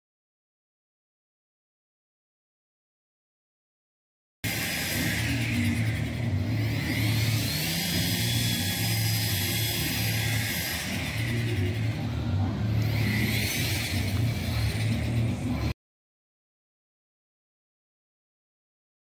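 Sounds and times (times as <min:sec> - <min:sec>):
car engine humming: 0:04.5 - 0:15.7.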